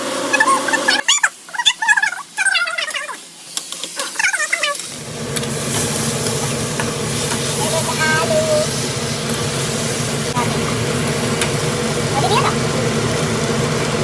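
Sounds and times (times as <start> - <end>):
steady rumbling with low hum: 4.2 - 14.0
pet whining: 7.6 - 8.8.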